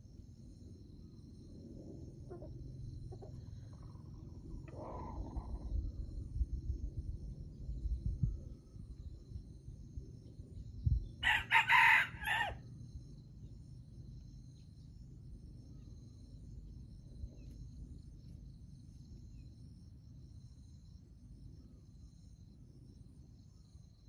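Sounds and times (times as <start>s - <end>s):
insects chirring: 0.0s - 24.0s
rooster crowing: 11.2s - 12.6s.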